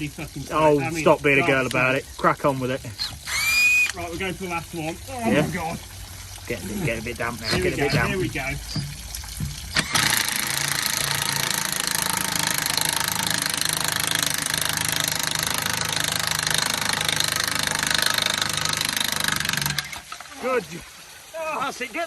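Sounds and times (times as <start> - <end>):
impact wrench hammering: 8.8 - 20.0.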